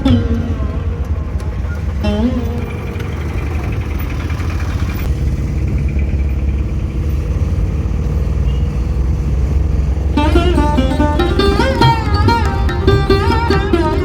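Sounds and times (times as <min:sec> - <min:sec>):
plucked-string background music: 0:00.0 - 0:04.3, 0:10.0 - 0:14.0
road vehicle rumbling: 0:00.0 - 0:14.0.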